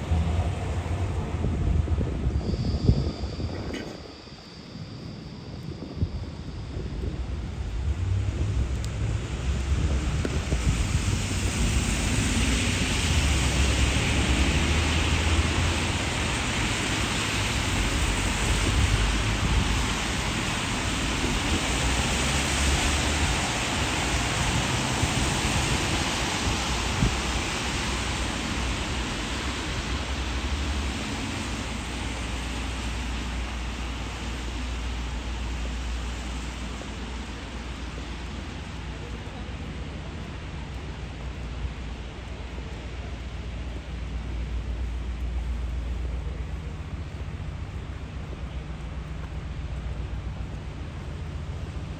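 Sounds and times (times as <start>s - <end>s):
low rumble: 0.0s - 25.3s
steady rain hiss: 0.0s - 51.9s.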